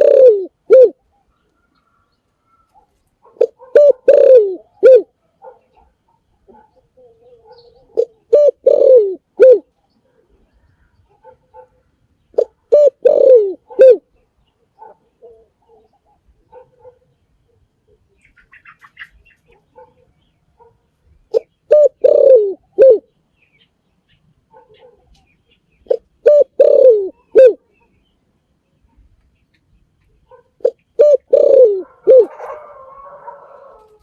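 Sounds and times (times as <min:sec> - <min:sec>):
dove cooing: 0:00.0 - 0:01.1, 0:01.8 - 0:23.1, 0:24.5 - 0:27.9, 0:30.2 - 0:34.0
small high bird chirps: 0:18.2 - 0:20.4.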